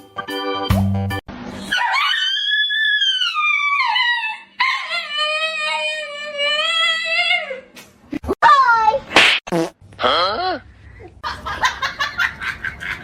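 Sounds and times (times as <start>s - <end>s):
dog howling: 1.7s - 7.7s.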